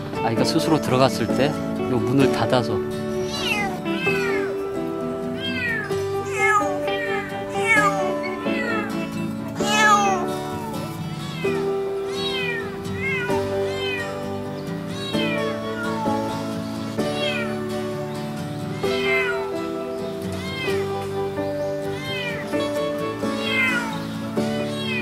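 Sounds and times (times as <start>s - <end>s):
background music: 0.0s - 25.0s
kitten mewing: 3.1s - 4.7s, 5.3s - 17.7s, 18.7s - 19.7s, 20.3s - 25.0s.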